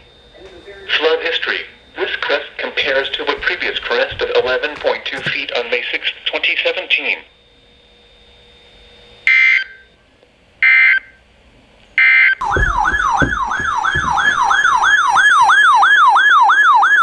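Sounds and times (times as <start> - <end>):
sweeping siren-like alert tone: 12.0 - 17.0.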